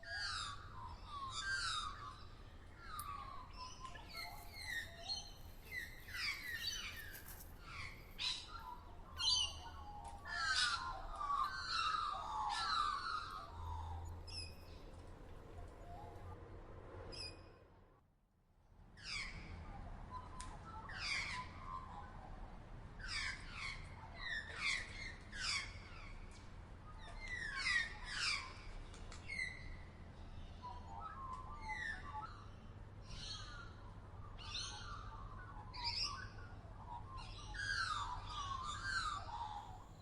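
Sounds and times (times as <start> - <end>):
birds calling: 0.0 - 16.4, 30.6 - 40.0.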